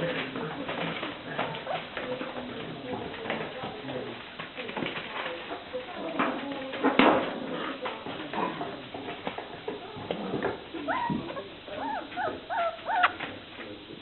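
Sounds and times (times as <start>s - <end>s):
puppies whining: 10.8s - 13.2s.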